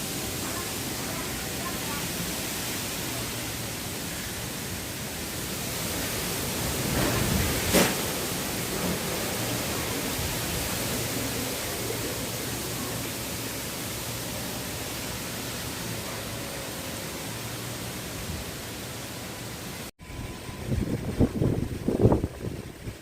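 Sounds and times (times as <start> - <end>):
strong wind blowing: 5.8 - 13.0, 20.0 - 23.0.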